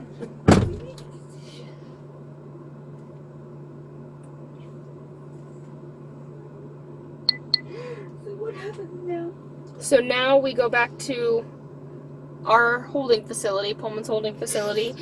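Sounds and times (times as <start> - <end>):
low cabin hum: 0.0 - 15.0
car door thump: 0.5 - 1.0.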